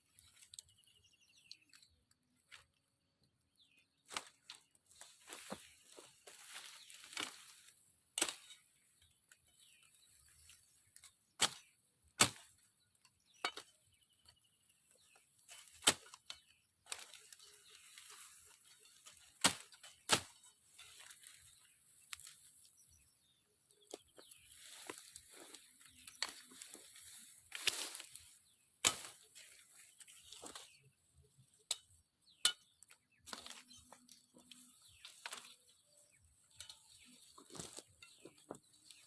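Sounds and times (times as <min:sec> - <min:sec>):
leaves and brush rustling: 0:04.0 - 0:12.8, 0:14.8 - 0:31.7, 0:32.7 - 0:39.0
blade chopping branches: 0:04.1 - 0:12.7, 0:15.0 - 0:22.5, 0:23.9 - 0:30.8, 0:31.6 - 0:39.0.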